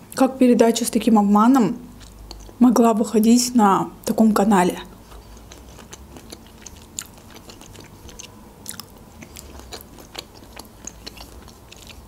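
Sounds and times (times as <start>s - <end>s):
closed-mouth chewing: 1.8s - 2.6s, 4.8s - 12.0s.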